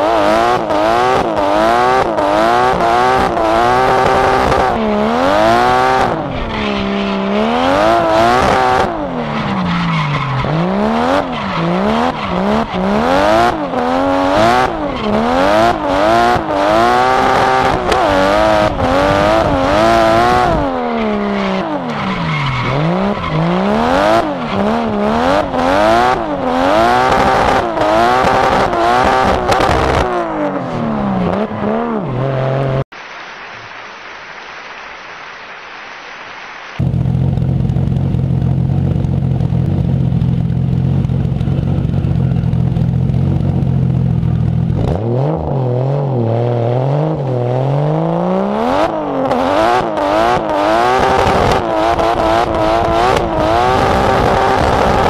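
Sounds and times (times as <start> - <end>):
car engine revving: 0.0 - 32.9, 36.8 - 55.0
tyre squeal: 6.2 - 13.6, 20.5 - 25.5.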